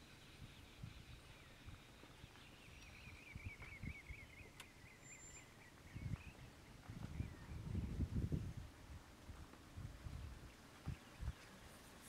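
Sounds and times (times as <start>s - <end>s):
small bird chirping rapidly: 0.0s - 6.6s.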